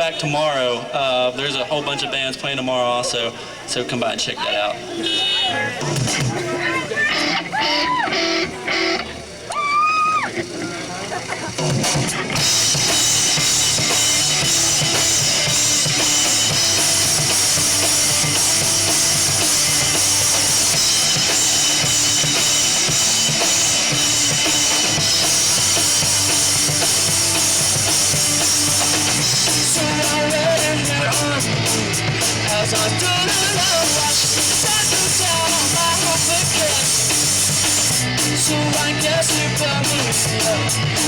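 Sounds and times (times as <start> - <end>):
rock band playing loudly: 5.0 - 41.0
bass drum: 12.4 - 41.0.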